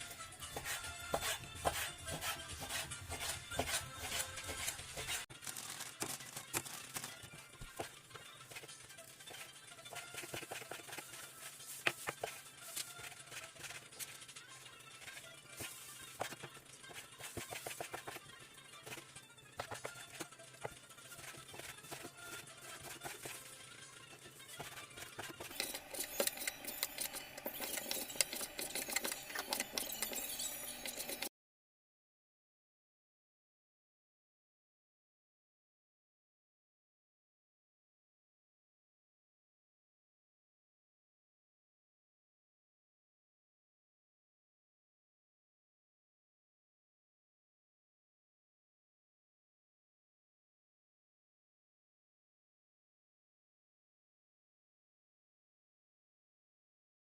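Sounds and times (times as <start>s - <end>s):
food preparation scraping and knocks: 0.4s - 8.7s
utensils clicking and tapping: 0.5s - 14.4s, 15.0s - 31.3s.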